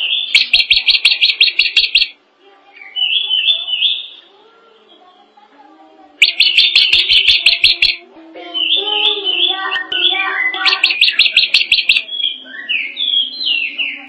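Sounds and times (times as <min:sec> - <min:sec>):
bird singing sharp notes: 0:00.0 - 0:02.2, 0:06.2 - 0:08.0, 0:08.6 - 0:14.0.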